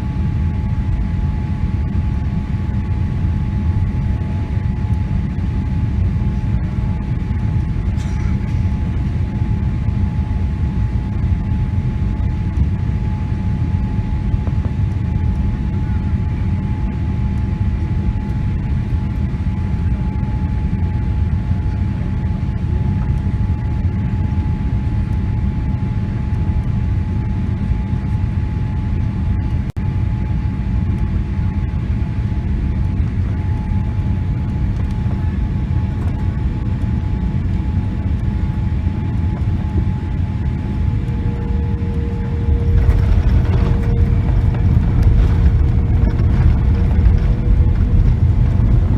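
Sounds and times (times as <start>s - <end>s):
airliner cabin engine rumble: 0.0s - 48.9s
thin steady whine: 26.6s - 48.9s.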